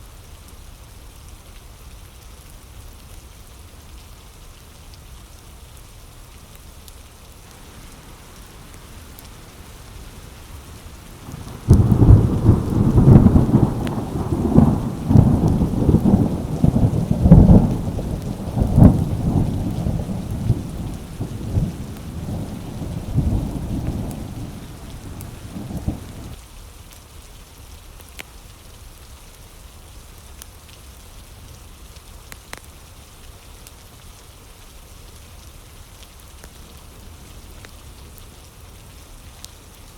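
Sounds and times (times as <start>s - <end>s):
steady rain falling: 0.2s - 26.4s, 28.0s - 39.9s
thunder rolling and cracking: 7.5s - 26.4s.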